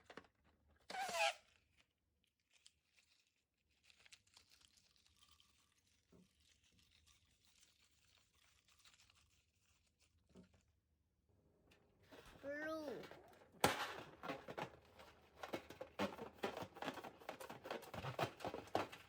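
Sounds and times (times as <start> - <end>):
faint soft crackles and clicks: 1.4 - 11.0.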